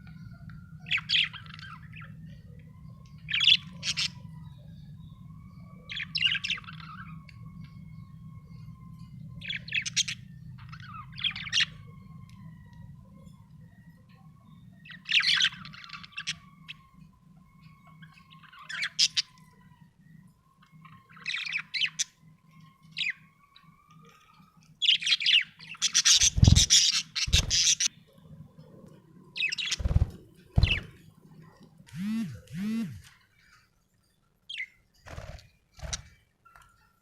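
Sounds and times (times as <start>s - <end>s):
budgerigar chirping and squawking: 25.0s - 27.9s.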